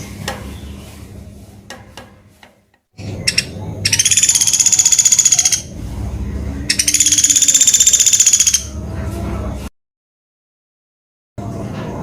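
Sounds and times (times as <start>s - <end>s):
woodpecker calling: 3.1s - 5.7s, 6.7s - 8.8s
rapid high rattling trill: 3.3s - 5.7s, 6.7s - 8.7s.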